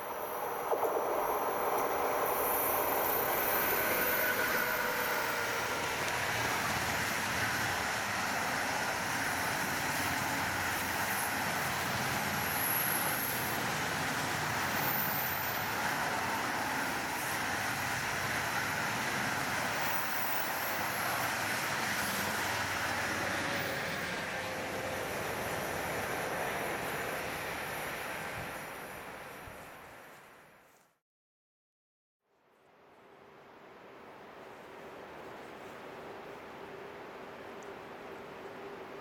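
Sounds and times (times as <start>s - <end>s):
train wheels rolling on rails: 0.0s - 30.2s.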